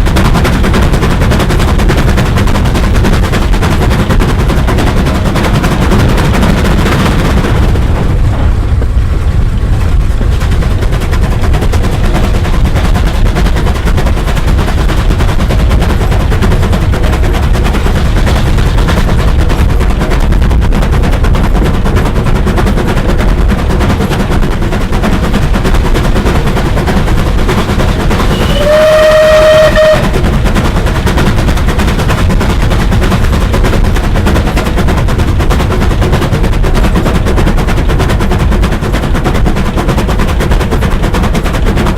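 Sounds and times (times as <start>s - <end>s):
steam locomotive exhaust beats: 0.0s - 41.9s
steam whistle: 28.2s - 30.2s.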